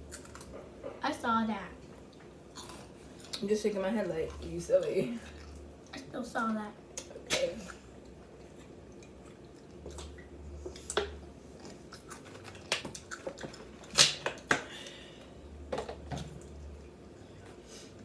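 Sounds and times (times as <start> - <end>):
chewing: 0.0 - 1.0, 1.9 - 3.5, 4.2 - 6.0, 7.0 - 14.5.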